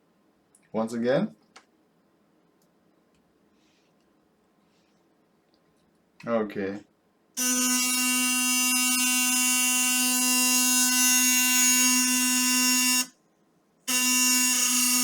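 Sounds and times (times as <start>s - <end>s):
electric toothbrush buzzing: 7.4s - 13.1s, 13.9s - 15.0s.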